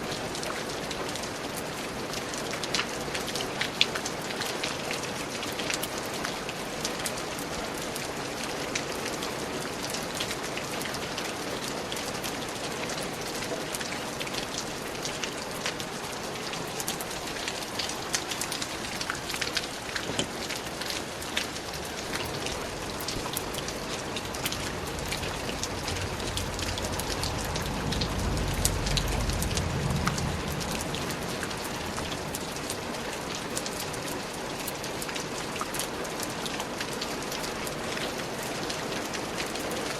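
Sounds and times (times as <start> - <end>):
rain falling in a forest: 0.0 - 39.9
low rumble: 22.4 - 32.7.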